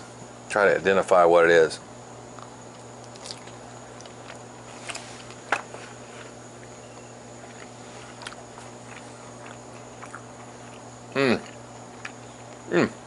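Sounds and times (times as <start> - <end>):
steady low hum: 0.0 - 13.0
person chewing: 2.3 - 12.7.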